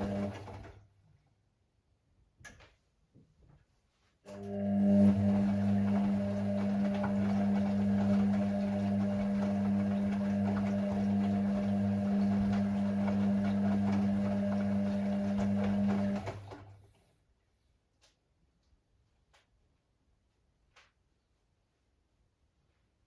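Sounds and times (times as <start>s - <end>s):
washing machine humming: 0.0s - 1.0s, 4.3s - 17.0s.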